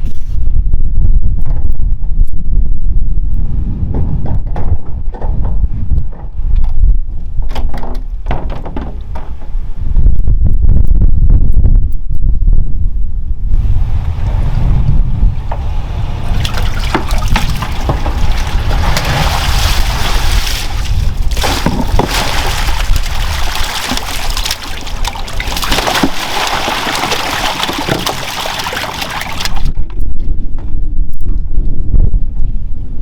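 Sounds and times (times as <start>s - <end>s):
wind rumble on microphone: 0.0s - 33.0s
running water splashing: 13.6s - 29.7s.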